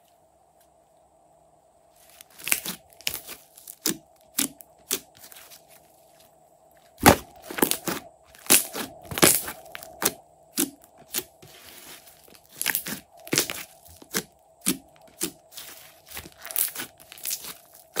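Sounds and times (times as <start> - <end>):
slime crackling and popping: 2.2 - 5.0, 7.0 - 11.3, 12.3 - 18.0.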